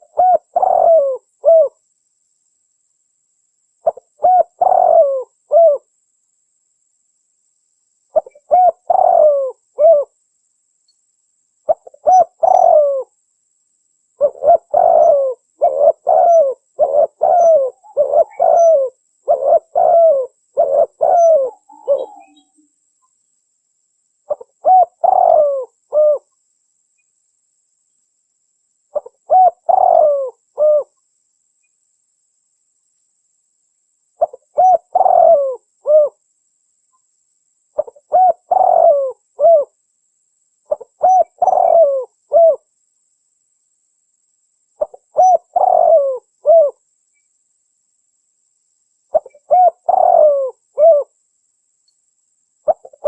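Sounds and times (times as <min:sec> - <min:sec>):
dove cooing: 0:00.0 - 0:01.8, 0:03.8 - 0:05.9, 0:08.2 - 0:10.2, 0:11.7 - 0:13.1, 0:14.2 - 0:22.6, 0:24.3 - 0:26.3, 0:28.9 - 0:30.9, 0:34.2 - 0:36.2, 0:37.8 - 0:39.8, 0:40.7 - 0:42.6, 0:44.8 - 0:46.8, 0:49.1 - 0:51.1.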